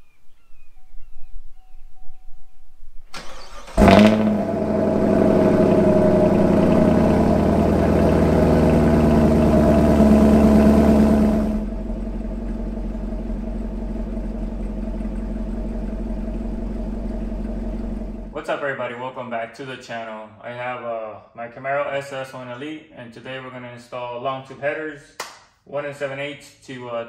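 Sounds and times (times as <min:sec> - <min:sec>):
car engine starting and idling: 0:03.1 - 0:18.4.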